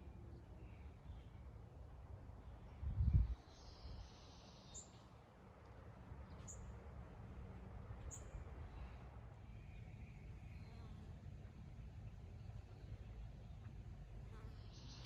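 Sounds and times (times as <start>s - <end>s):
low steady rumble: 6.0s - 15.0s.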